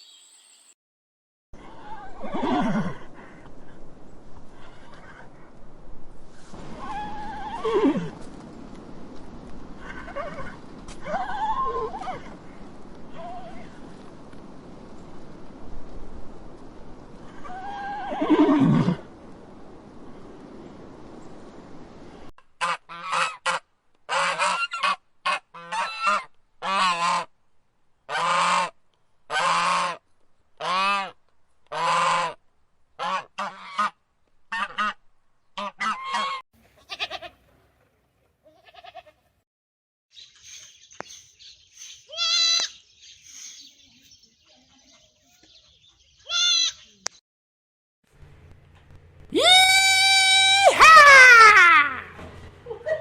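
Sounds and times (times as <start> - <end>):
waterfowl calling: 35.6 - 36.4.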